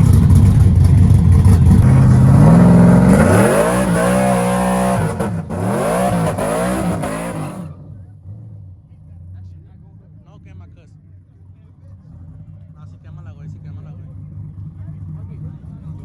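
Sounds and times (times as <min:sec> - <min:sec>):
loud car engine revving: 0:00.0 - 0:08.8.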